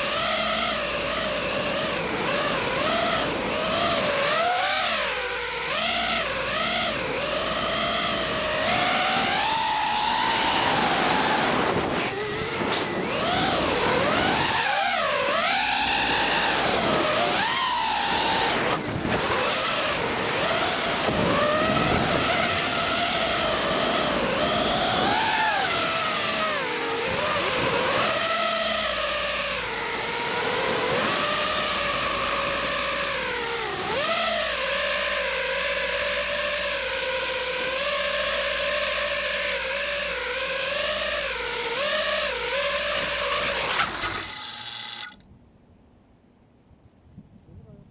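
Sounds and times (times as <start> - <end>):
quadcopter motors whining: 0.0 - 45.3.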